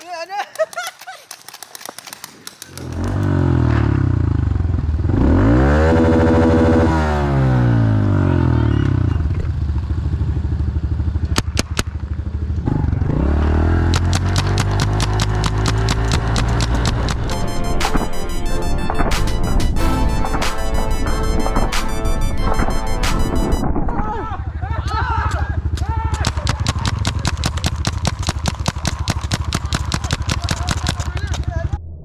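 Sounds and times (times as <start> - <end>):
sharp cracks: 0.0 - 3.3.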